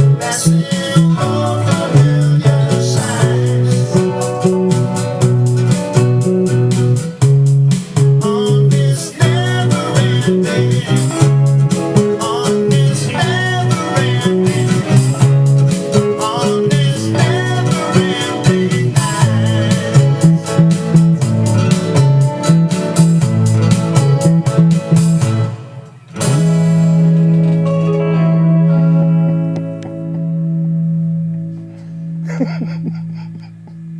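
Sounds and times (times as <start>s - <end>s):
steady drum beat: 0.0s - 25.5s
bass guitar: 0.0s - 33.9s
guitar: 0.0s - 33.9s.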